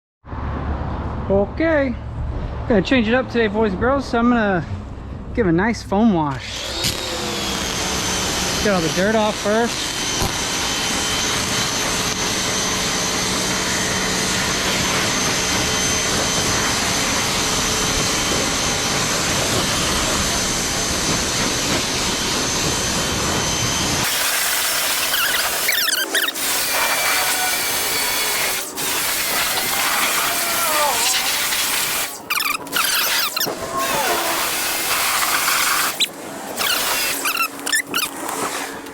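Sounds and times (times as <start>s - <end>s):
pressure washer motor whine: 6.3s - 38.9s
water spray hissing: 24.1s - 38.9s.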